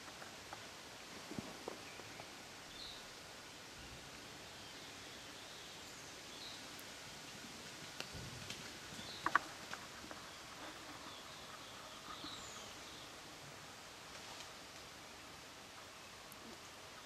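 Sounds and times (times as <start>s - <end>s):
faint bird chirps: 10.1s - 13.2s.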